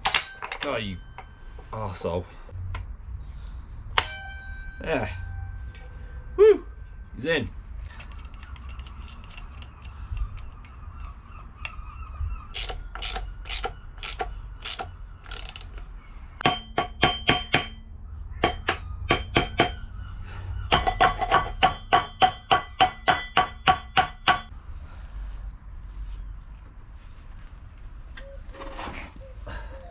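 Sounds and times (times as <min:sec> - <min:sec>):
ratchet spanner clicking: 0:12.6 - 0:15.9.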